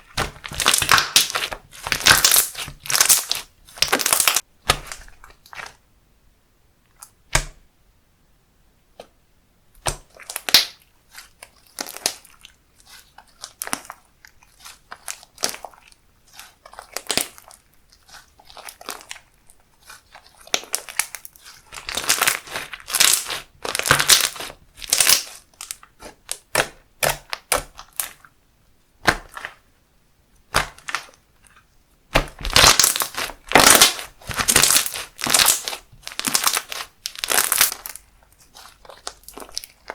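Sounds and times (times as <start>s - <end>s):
crackling squishing pops: 0.0s - 5.8s, 9.8s - 12.2s, 16.4s - 28.2s, 29.0s - 29.6s, 30.4s - 31.2s, 32.1s - 39.9s
slime squished by hand: 0.0s - 5.8s, 9.8s - 28.2s, 29.0s - 29.6s, 30.5s - 39.9s.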